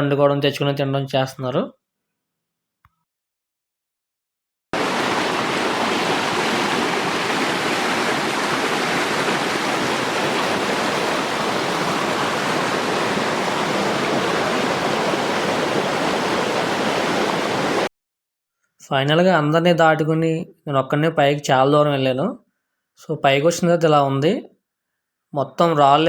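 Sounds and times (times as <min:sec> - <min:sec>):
waterfall rushing over rocks: 0:04.8 - 0:17.9.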